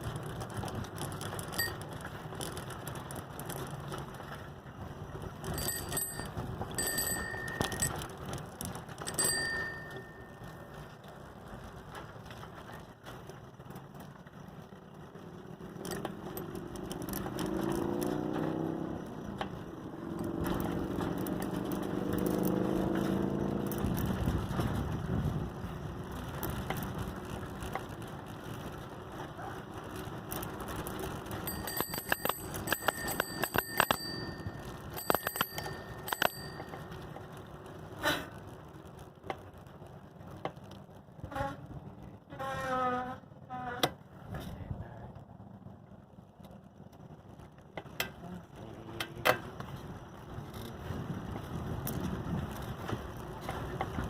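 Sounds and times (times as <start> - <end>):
bicycle bell ringing: 1.2 - 2.5, 5.4 - 11.0, 31.2 - 37.3
vehicle passing: 13.5 - 37.5.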